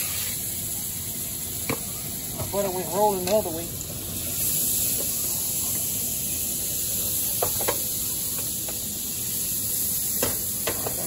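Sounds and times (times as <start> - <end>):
batter sizzling on a griddle: 0.0 - 11.0.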